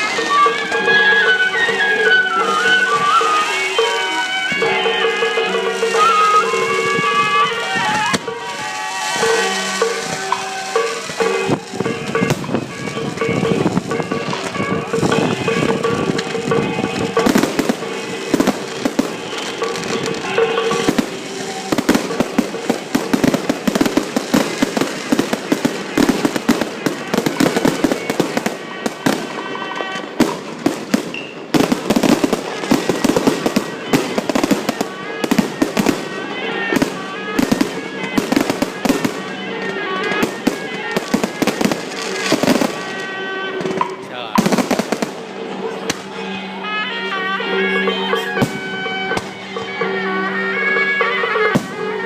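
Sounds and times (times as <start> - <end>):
fireworks cracking: 0.0 - 46.7, 47.9 - 52.0
loud music with held notes: 0.0 - 52.0.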